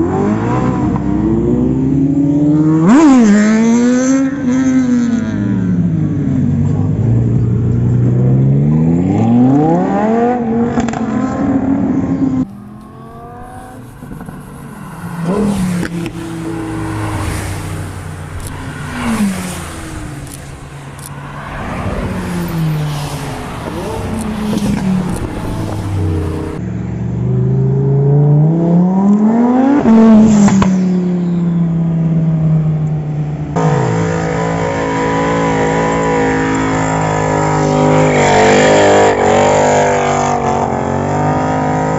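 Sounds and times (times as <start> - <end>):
supercar engines revving: 0.0 - 41.9
car passing by: 13.0 - 26.6.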